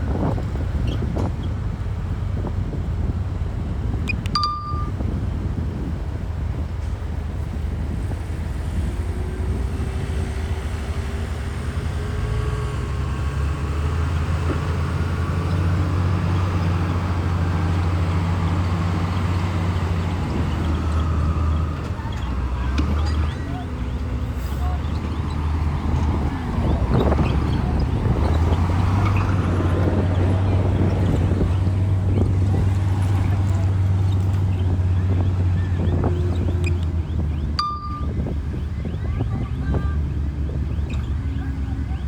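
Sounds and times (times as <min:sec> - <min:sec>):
metallic clink: 0:04.1 - 0:05.0, 0:37.6 - 0:38.2.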